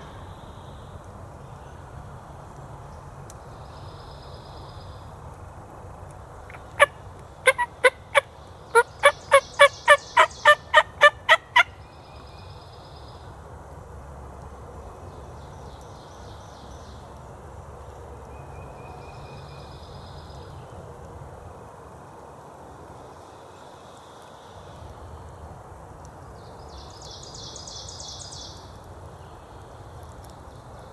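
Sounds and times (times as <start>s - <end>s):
turkey yelping: 6.5s - 11.7s.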